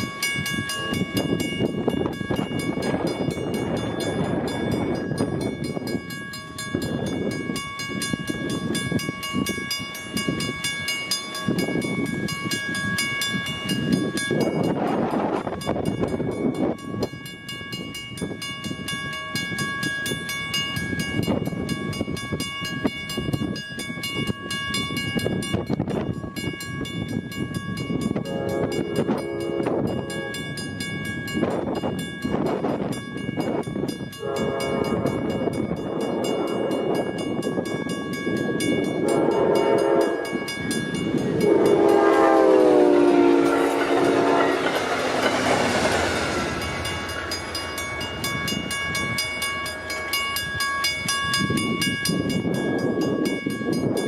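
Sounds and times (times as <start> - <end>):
train rushing past: 0.0 - 17.1, 28.2 - 54.0
crossing bell ringing: 0.0 - 54.0
train horn: 28.2 - 30.6, 34.2 - 35.4, 39.0 - 40.5, 41.3 - 45.8.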